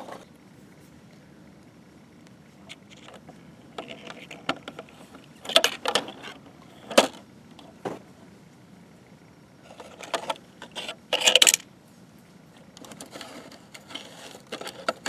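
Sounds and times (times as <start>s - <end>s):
toy truck parts clicking: 9.8s - 11.6s.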